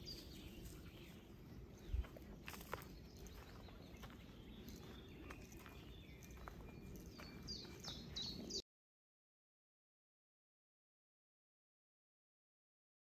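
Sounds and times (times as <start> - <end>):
birds chirping and whistling: 0.0 - 8.6.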